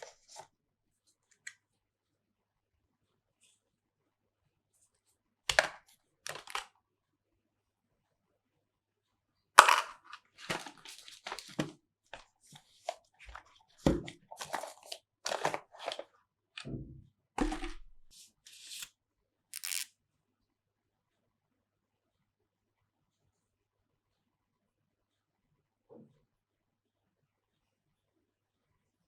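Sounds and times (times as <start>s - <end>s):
packaging crinkling and tearing: 19.6s - 19.9s.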